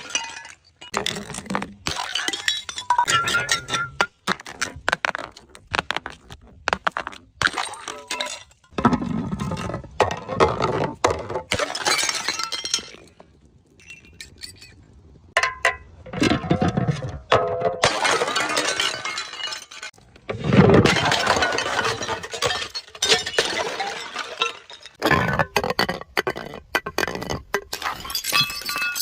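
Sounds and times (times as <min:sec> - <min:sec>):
glass bottles shattering: 0:00.0 - 0:04.2, 0:07.4 - 0:13.2, 0:13.8 - 0:14.8, 0:17.3 - 0:20.0, 0:20.6 - 0:25.3, 0:27.7 - 0:29.0
broken glass crunching: 0:17.8 - 0:20.0, 0:27.7 - 0:29.0.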